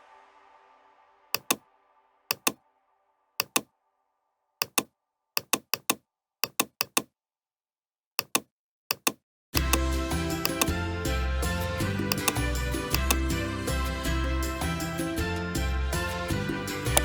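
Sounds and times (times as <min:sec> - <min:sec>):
computer clicks: 0:01.4 - 0:01.6, 0:02.3 - 0:02.6, 0:03.4 - 0:03.7, 0:04.6 - 0:07.1, 0:08.2 - 0:09.8, 0:12.0 - 0:13.2.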